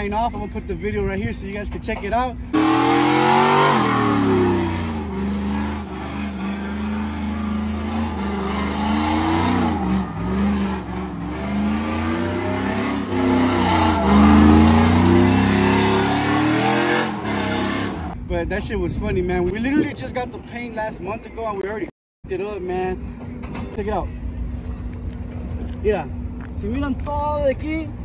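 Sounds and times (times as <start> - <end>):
truck engine revving: 2.5 - 18.2.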